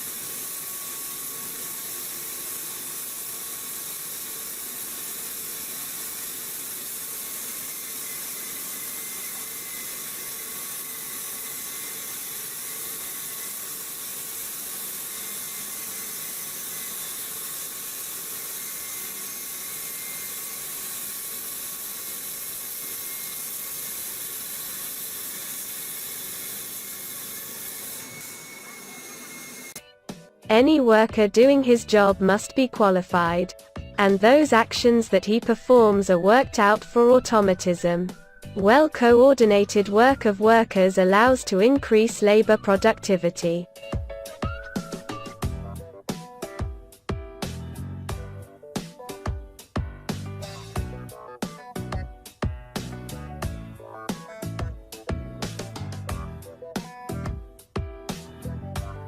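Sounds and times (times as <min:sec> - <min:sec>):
metal lathe running: 0:00.0 - 0:29.8.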